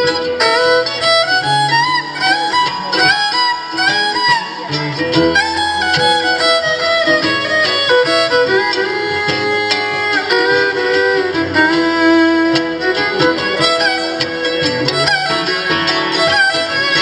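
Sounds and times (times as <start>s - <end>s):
fiddle playing sliding notes: 0.0s - 17.0s
plucked acoustic strings: 0.0s - 17.0s.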